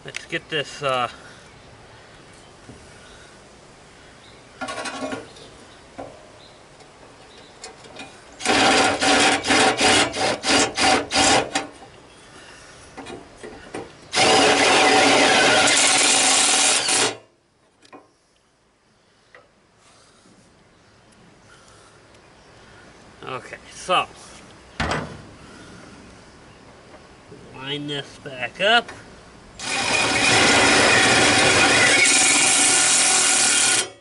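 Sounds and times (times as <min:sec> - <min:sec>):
power drill whirring: 0:08.4 - 0:11.6, 0:14.1 - 0:17.2, 0:29.6 - 0:34.0.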